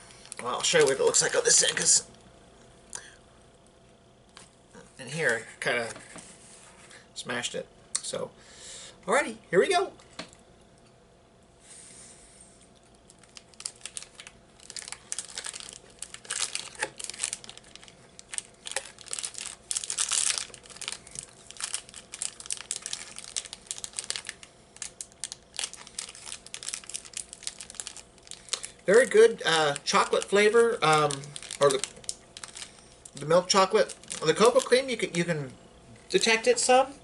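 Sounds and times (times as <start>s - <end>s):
plastic wrapper crinkling: 0.1s - 2.1s, 12.9s - 35.4s.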